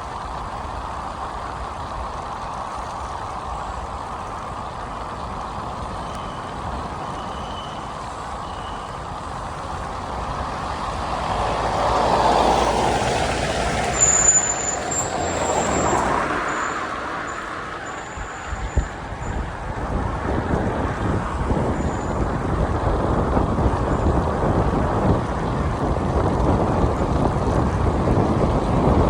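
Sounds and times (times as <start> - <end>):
bicycle road noise: 0.0 - 29.0
rushing wind: 0.0 - 29.0
short high squeals: 7.1 - 9.0, 13.9 - 19.0.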